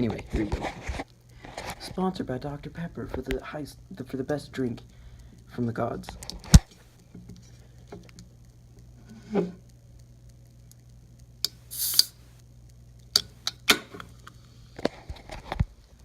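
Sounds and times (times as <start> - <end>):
short hiss of can: 11.5 - 12.3.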